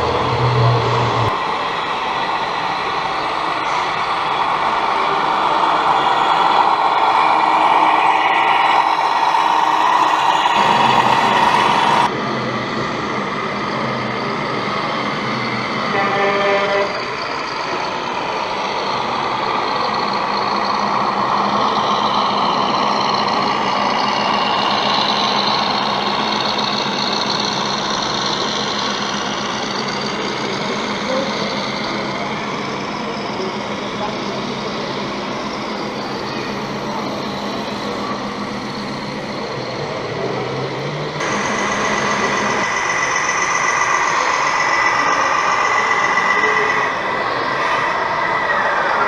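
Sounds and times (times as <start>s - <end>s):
electronic engine sounds: 0.0s - 49.0s
electronic horn: 15.9s - 17.0s.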